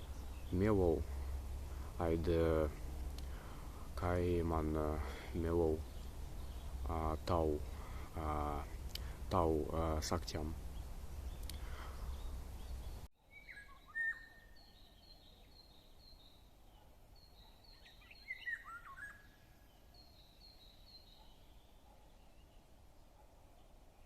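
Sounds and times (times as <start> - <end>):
birds chirping: 0.0 - 24.0
louder lower bird calls: 10.7 - 22.6.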